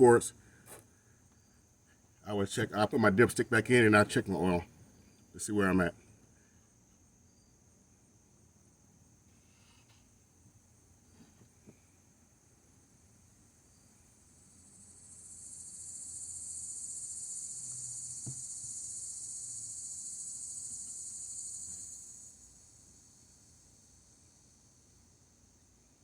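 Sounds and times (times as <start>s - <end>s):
insect buzzing: 13.7s - 24.4s.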